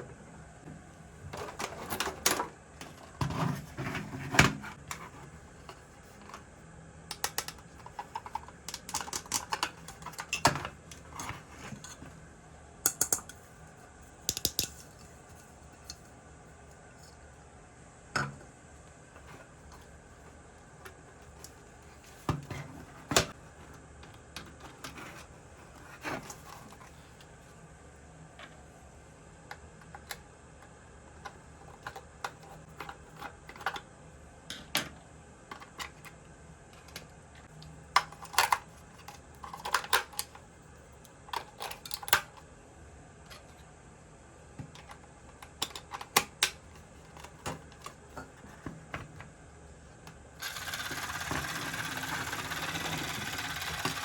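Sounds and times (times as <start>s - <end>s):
plastic toy parts clicking: 14.3s - 14.8s
toy motor buzzing: 50.4s - 54.0s.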